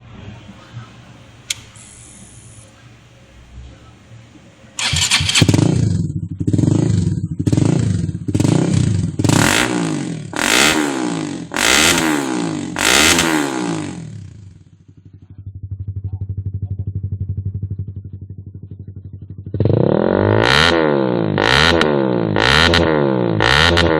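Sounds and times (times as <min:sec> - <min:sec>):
motorcycle engine revving: 0:04.8 - 0:23.9.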